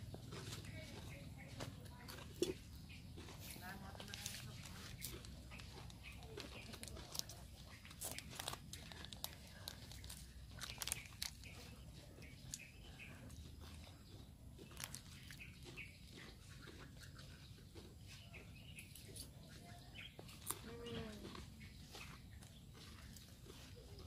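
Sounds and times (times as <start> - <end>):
person chewing and crunching: 0.0 - 24.0.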